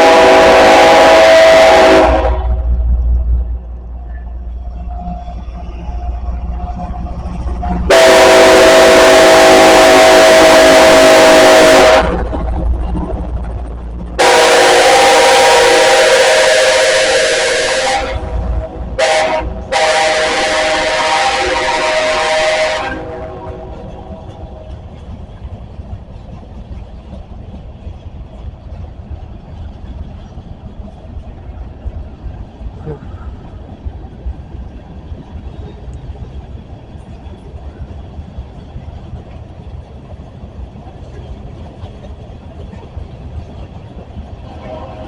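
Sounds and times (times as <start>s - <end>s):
locomotive air horn blast: 0.0s - 2.8s, 7.6s - 12.3s, 14.2s - 24.5s, 44.5s - 45.0s
train rumbling: 0.0s - 45.0s.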